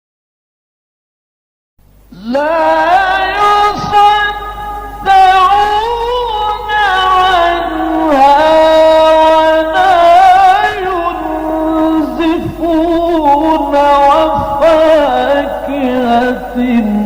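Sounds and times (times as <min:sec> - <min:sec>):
man reciting melodically: 0:02.0 - 0:17.0.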